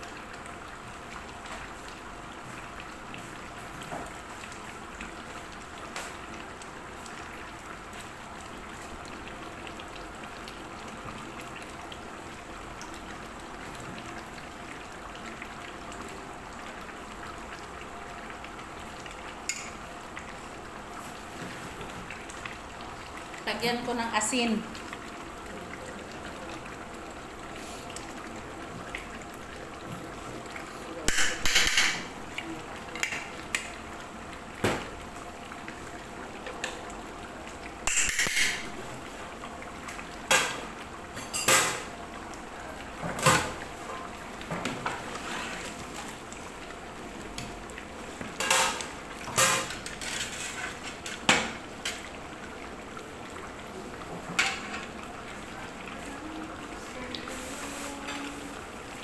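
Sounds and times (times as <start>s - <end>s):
metal utensil scraping in pot: 49.4s - 51.0s.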